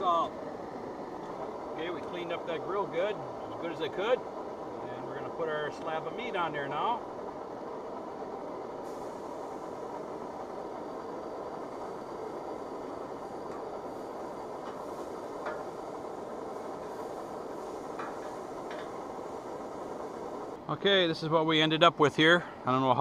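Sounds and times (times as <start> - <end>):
steak sizzling on a grill: 8.8 - 10.4.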